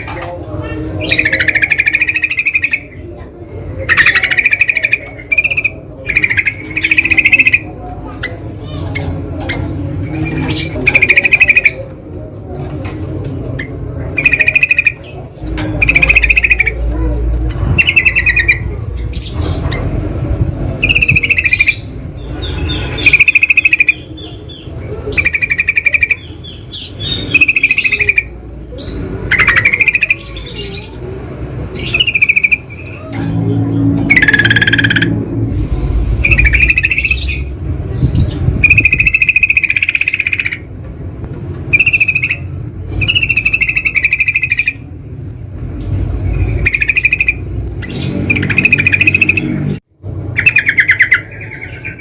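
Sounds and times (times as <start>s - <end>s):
bulbul calling: 1.0s - 3.0s, 3.8s - 11.9s, 13.6s - 16.8s, 17.7s - 19.8s, 20.8s - 31.0s, 31.8s - 33.1s, 34.0s - 35.2s, 36.2s - 40.7s, 41.7s - 44.9s, 45.8s - 52.0s
low rumble: 32.7s - 39.2s.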